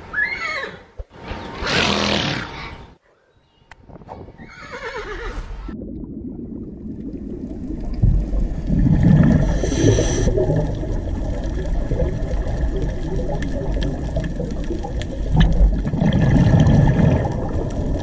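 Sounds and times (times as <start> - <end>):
pony whinnying: 4.4 - 5.5
water gurgling underwater: 5.7 - 18.0.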